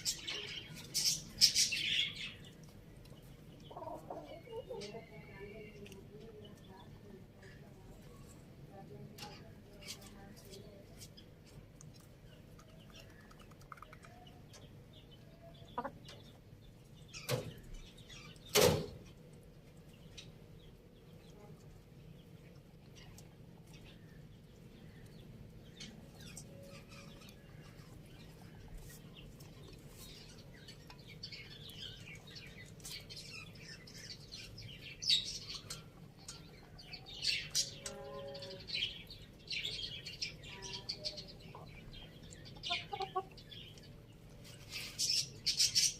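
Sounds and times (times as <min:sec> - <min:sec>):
chickens feeding: 0:00.0 - 0:08.7, 0:09.3 - 0:45.9
chickens clucking softly: 0:03.0 - 0:06.2, 0:12.0 - 0:16.4, 0:41.0 - 0:45.8.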